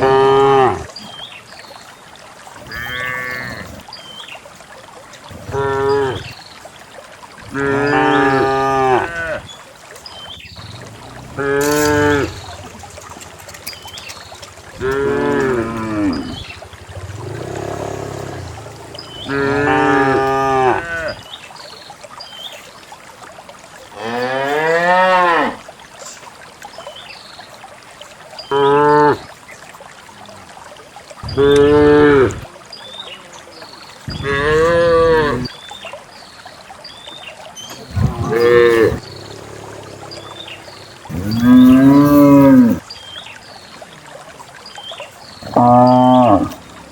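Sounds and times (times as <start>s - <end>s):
cows mooing: 2.7s - 3.7s, 7.5s - 9.4s, 10.8s - 12.6s, 14.8s - 21.2s, 34.2s - 35.5s, 37.9s - 42.8s, 45.5s - 46.7s.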